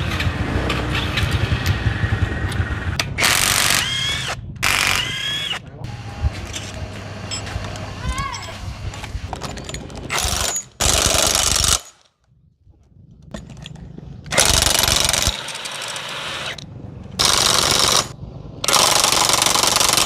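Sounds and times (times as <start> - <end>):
air tool hammering rattle: 3.0 - 12.1, 14.3 - 20.0.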